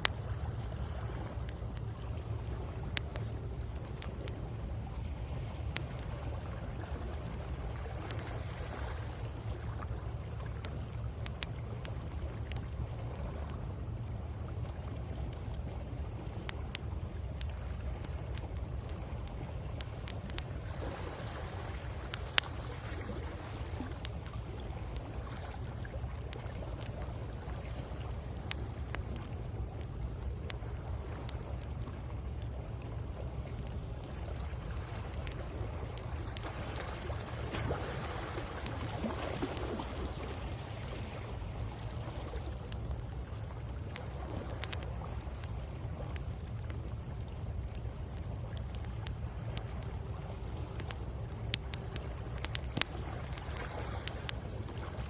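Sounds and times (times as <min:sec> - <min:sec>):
bonfire crackling and popping: 0:00.0 - 0:55.0
waves rumbling on shore: 0:20.1 - 0:55.0.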